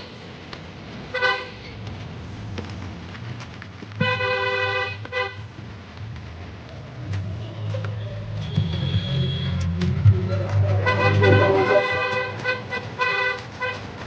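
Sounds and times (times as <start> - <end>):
engine running hum: 8.0 - 12.5
vehicle horn honking: 10.7 - 12.7.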